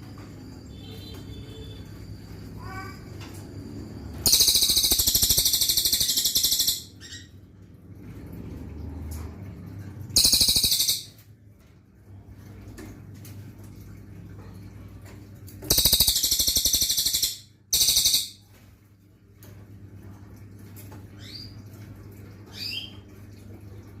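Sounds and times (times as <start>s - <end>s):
songbird singing rapid trills: 4.3s - 6.9s, 10.2s - 11.1s, 15.7s - 18.3s.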